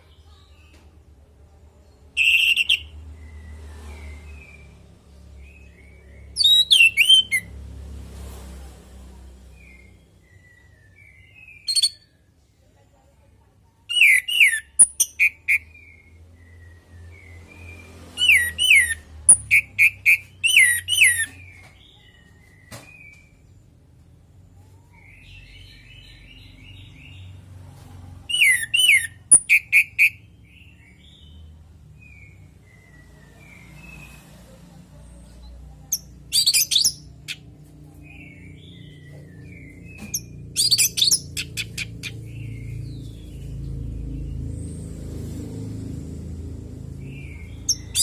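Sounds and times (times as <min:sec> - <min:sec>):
soft bird twittering: 0:01.8 - 0:07.6, 0:09.1 - 0:12.3, 0:13.9 - 0:23.7, 0:28.3 - 0:48.0
thrush singing sharp chirps: 0:02.1 - 0:07.6, 0:28.3 - 0:34.2, 0:35.9 - 0:37.5, 0:38.1 - 0:45.8, 0:46.6 - 0:48.0.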